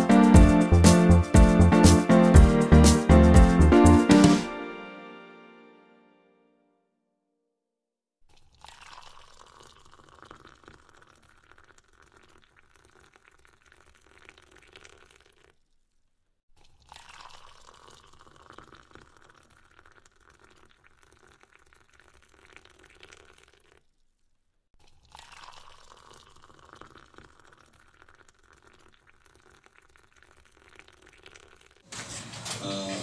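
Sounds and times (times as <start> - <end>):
liquid sloshing: 16.6 - 24.1, 24.8 - 32.3.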